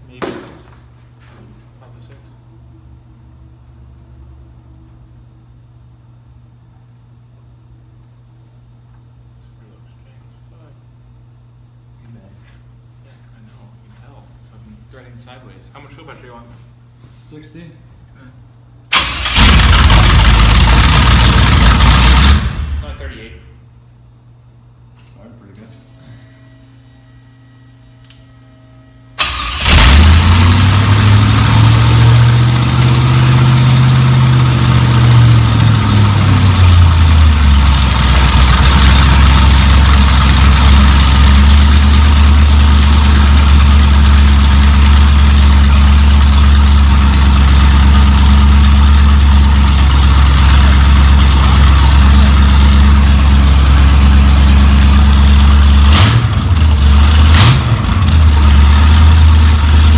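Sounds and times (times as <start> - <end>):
car engine cranking and idling: 18.9 - 22.9, 29.2 - 59.9.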